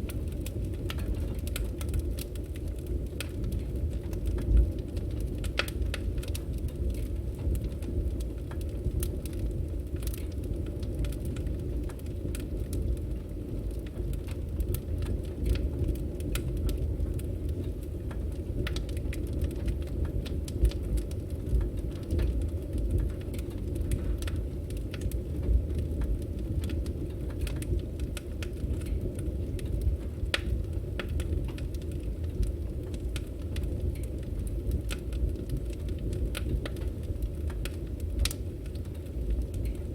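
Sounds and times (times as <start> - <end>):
firewood crackling and popping: 0.0 - 39.9
low rumble of flames: 0.0 - 39.9.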